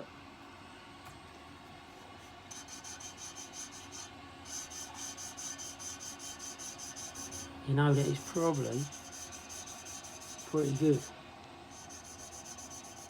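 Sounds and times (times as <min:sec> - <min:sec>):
valve lapping gritty rasping: 0:02.2 - 0:11.1, 0:11.7 - 0:13.0.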